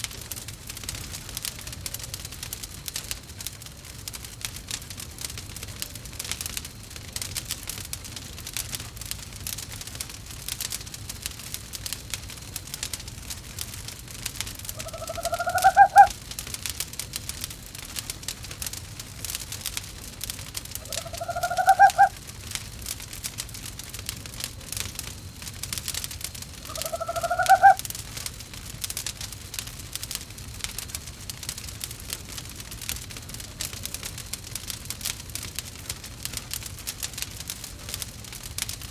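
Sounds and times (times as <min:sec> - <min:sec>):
wood fire crackling: 0:00.0 - 0:38.9
owl calling: 0:14.8 - 0:16.2, 0:20.8 - 0:22.2, 0:26.6 - 0:27.8.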